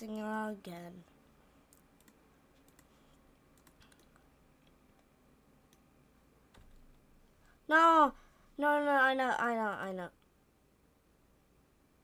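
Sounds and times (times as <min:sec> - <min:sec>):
keyboard and mouse clicks: 0:01.7 - 0:05.1.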